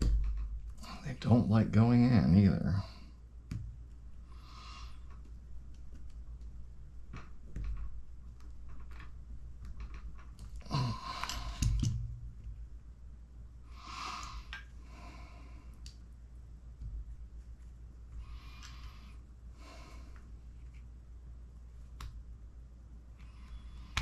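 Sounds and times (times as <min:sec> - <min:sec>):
person sighing: 0:10.6 - 0:11.8.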